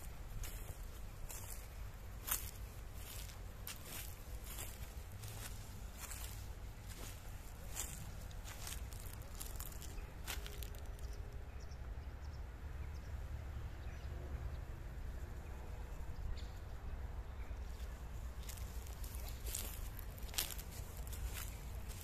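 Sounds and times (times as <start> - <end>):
footstep in dry leaves: 0.0 - 11.2, 17.7 - 22.0
low outdoor rumble: 0.0 - 22.0.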